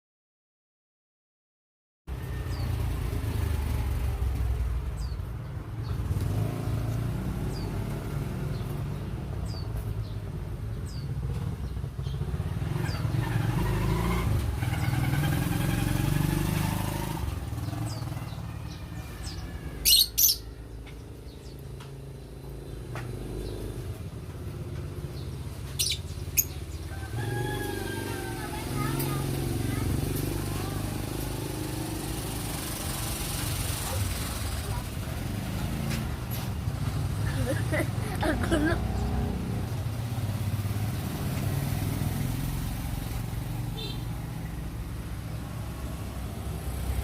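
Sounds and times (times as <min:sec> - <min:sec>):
birds chirping: 0:02.1 - 0:41.6
low rumble of vehicle traffic: 0:02.1 - 0:47.0
shrill bird calls: 0:18.6 - 0:20.6.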